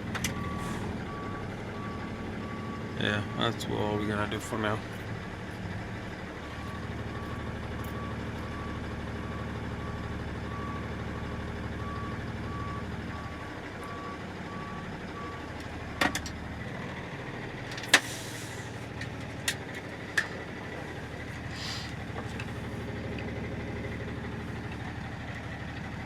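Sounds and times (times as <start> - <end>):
truck engine running: 0.0 - 26.0
reversing alarm beeping: 0.3 - 3.7, 6.5 - 15.5.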